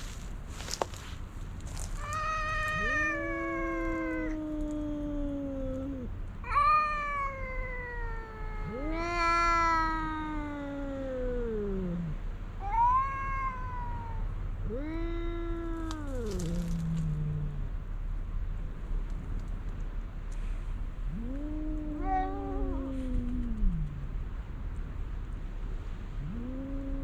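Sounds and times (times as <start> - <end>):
cat yowling: 1.7 - 11.7, 12.6 - 17.1, 21.1 - 23.9.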